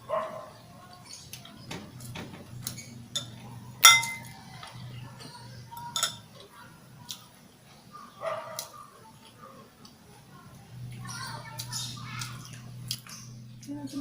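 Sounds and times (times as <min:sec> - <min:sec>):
steady low hum: 0:01.9 - 0:08.0, 0:10.2 - 0:14.0
tableware clinking and tapping: 0:02.6 - 0:04.3, 0:05.8 - 0:06.3
struck plate ringing: 0:03.8 - 0:04.3.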